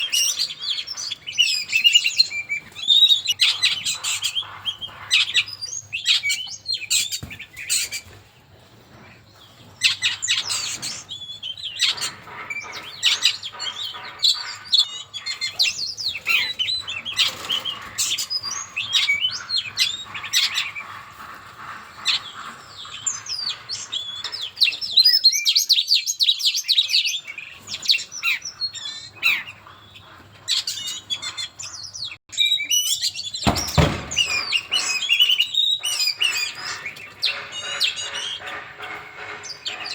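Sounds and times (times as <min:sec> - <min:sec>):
songbird chirping and whistling: 0:00.0 - 0:08.1
low thump: 0:33.5 - 0:34.4.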